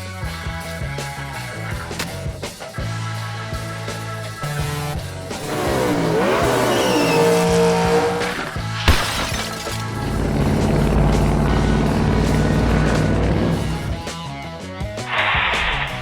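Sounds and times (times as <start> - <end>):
rock music: 0.0 - 9.0, 9.7 - 16.0
car swooping in pitch: 5.4 - 8.4
crash with breaking glass: 6.8 - 11.0
low engine rumble: 9.9 - 14.0.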